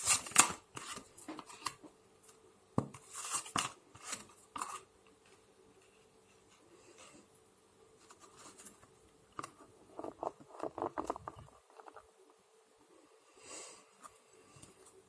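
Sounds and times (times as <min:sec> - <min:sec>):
cards clicking and rustling: 0:00.0 - 0:01.8.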